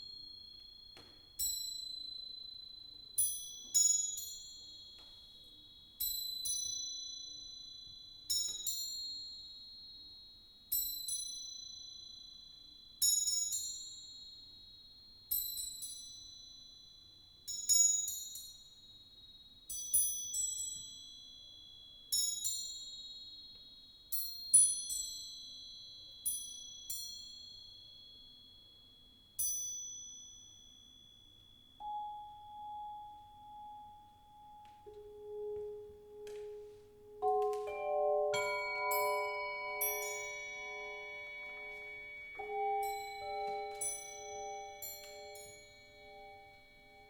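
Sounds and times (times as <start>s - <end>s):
crotales bell-like strokes: 37.7s - 47.0s.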